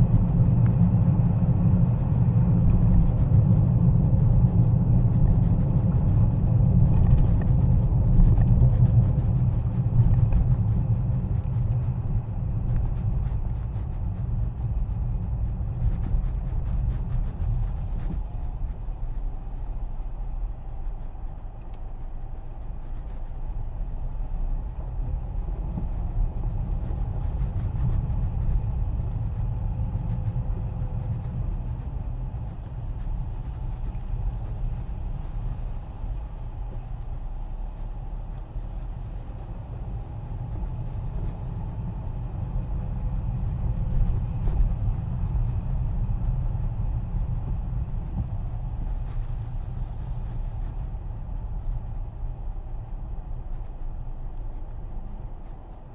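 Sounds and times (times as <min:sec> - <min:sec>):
car driving rumble: 0:00.0 - 0:55.9.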